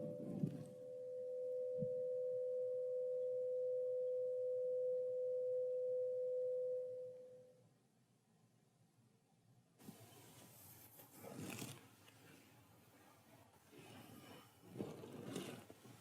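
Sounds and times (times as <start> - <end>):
pure ringing tone: 0.0 - 7.6.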